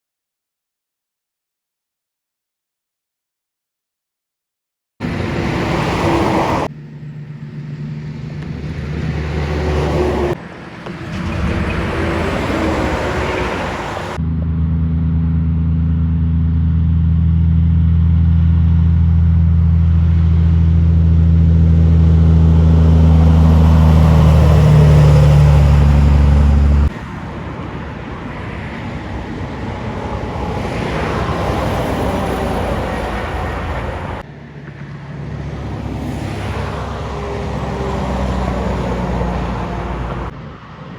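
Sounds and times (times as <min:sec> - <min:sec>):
heavy trucks passing: 0:05.0 - 0:14.2, 0:19.2 - 0:40.9
truck diesel engine droning: 0:05.0 - 0:40.4.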